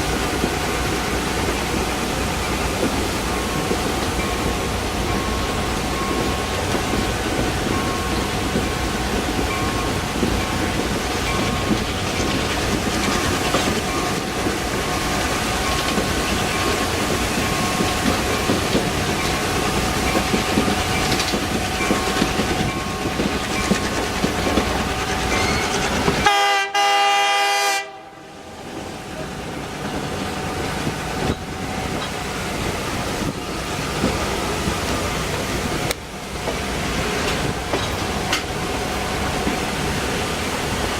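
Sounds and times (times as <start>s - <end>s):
train rumble and clatter: 0.0s - 40.9s
locomotive horn: 25.4s - 28.4s.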